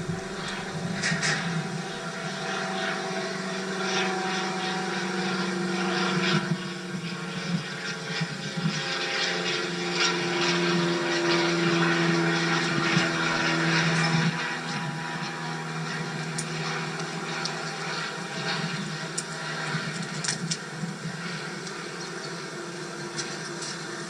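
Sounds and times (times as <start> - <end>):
motor humming: 0.0 - 3.6.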